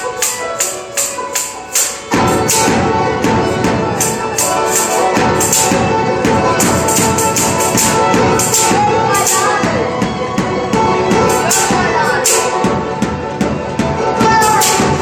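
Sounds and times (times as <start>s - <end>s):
jingling percussion: 0.0s - 15.0s
live band music: 0.0s - 15.0s.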